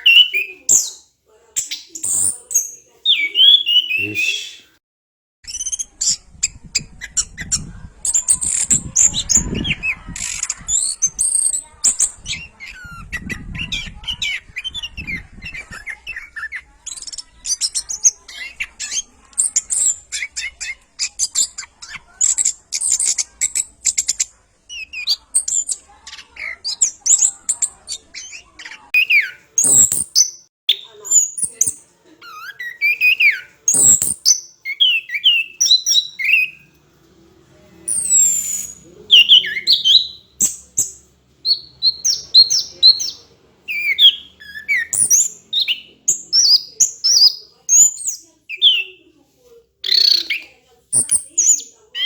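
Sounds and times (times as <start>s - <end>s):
thrush singing: 2.0s - 4.8s.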